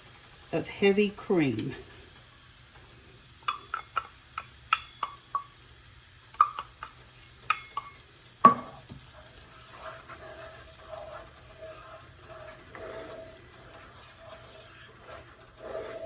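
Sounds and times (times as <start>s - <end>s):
cream simmering in pan: 0.0s - 16.0s
utensil clinking against skillet: 3.4s - 5.5s, 6.4s - 8.9s.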